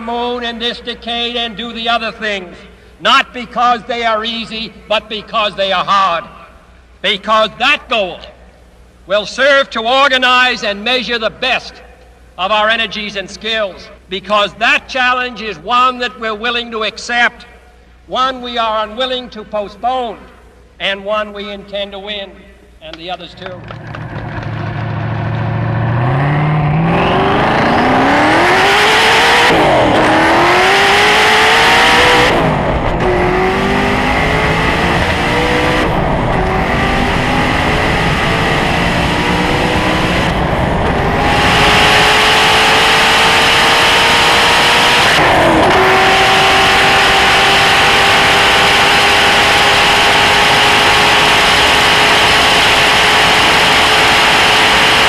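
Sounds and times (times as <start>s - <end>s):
car engine accelerating hard: 23.6s - 55.0s.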